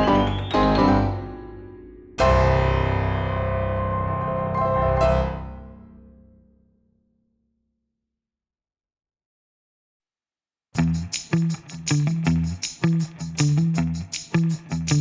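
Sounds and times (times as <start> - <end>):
piano music: 0.0 - 6.0.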